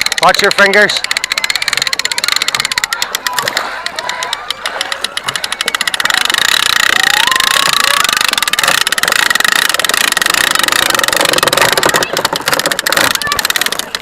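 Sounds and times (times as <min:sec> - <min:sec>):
motor running with rattle and whine: 0:05.2 - 0:14.0.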